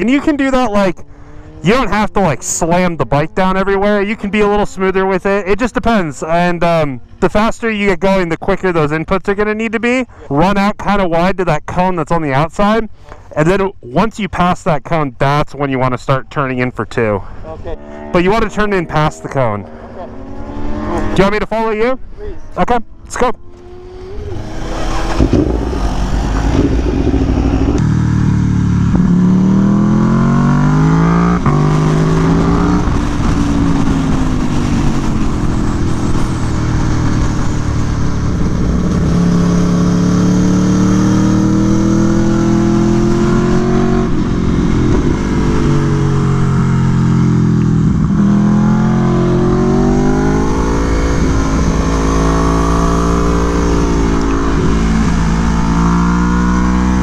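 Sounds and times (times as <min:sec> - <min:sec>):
motorcycle engine accelerating: 0:00.0 - 0:06.5, 0:17.4 - 0:21.6, 0:22.4 - 0:57.0.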